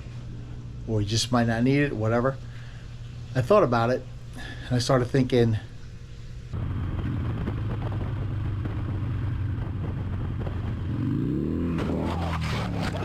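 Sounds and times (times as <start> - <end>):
road and wind noise: 6.5 - 13.0
motorcycle engine running: 6.6 - 13.0.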